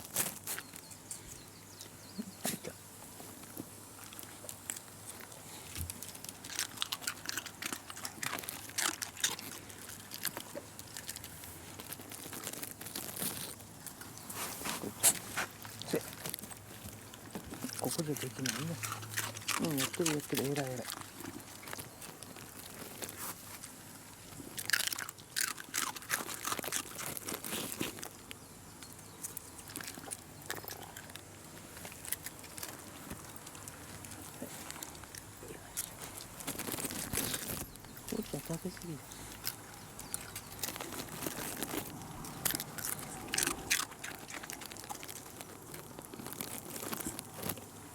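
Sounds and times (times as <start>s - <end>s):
dog crunching a treat: 0.0s - 47.9s.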